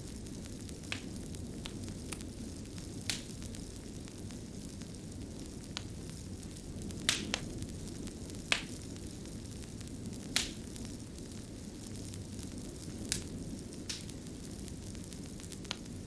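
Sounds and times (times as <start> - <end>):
fire crackling pops: 0.0 - 16.0
fire rumbling and hissing: 0.0 - 16.0.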